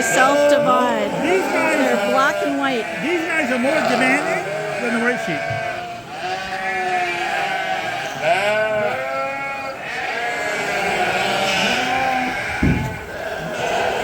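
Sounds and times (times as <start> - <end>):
sheep bleating: 0.0 - 14.0
low thud: 12.5 - 13.1.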